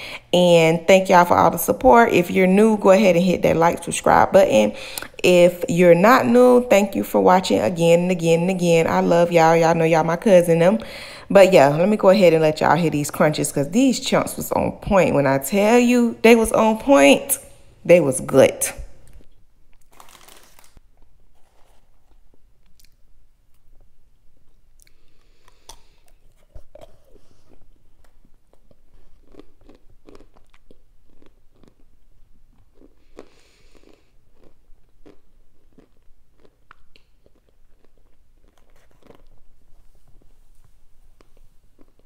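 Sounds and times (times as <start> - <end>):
crunching and chewing brittle chunks: 19.7 - 23.8, 24.8 - 40.3, 41.2 - 42.0.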